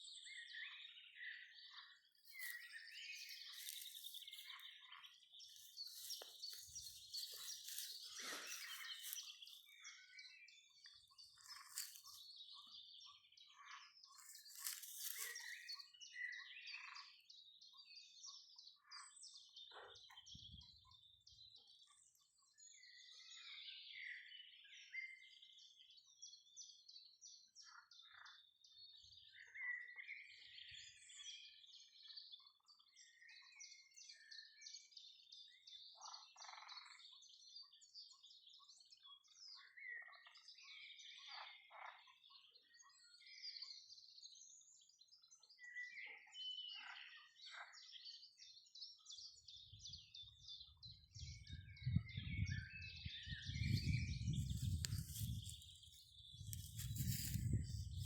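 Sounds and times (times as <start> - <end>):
bird chirps: 0.0 - 21.1, 44.5 - 58.0.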